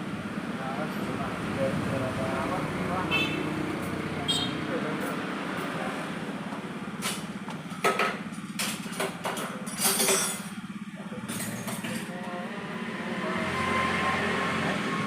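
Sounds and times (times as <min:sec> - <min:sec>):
motorcycle engine idling: 0:00.0 - 0:12.5
sharp metallic knocks and clinks: 0:07.8 - 0:10.6, 0:11.3 - 0:12.1.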